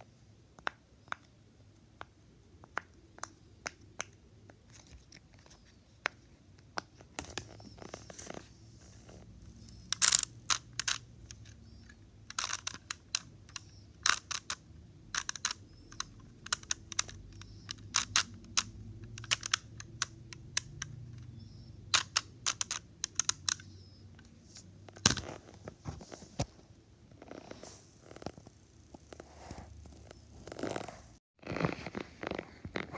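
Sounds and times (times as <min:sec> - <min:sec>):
plastic fidget toys clicking: 0:09.7 - 0:23.7.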